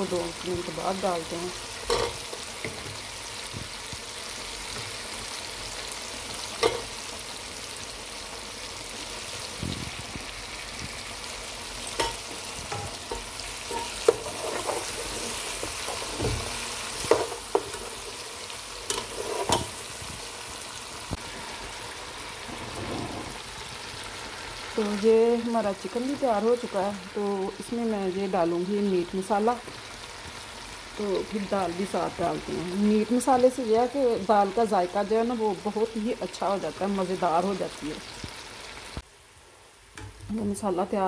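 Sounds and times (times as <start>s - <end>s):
chicken sizzling in pot: 0.0s - 41.0s
metal spoon clinking against pot: 1.9s - 2.2s.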